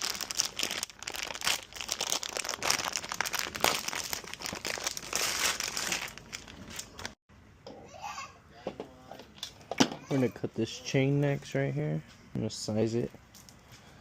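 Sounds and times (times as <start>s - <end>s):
material crinkling and rustling: 0.0s - 7.2s.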